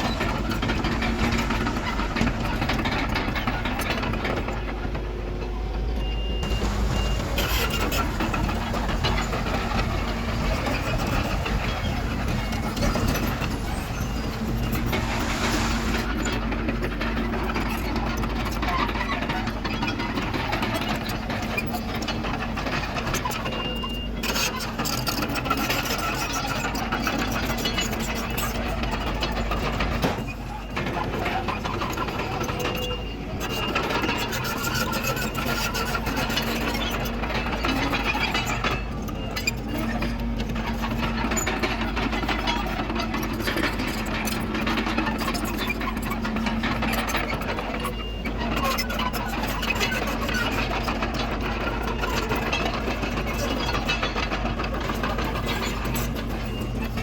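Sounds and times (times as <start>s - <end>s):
diesel engine running: 0.0s - 18.5s
machinery clatter: 0.0s - 57.0s.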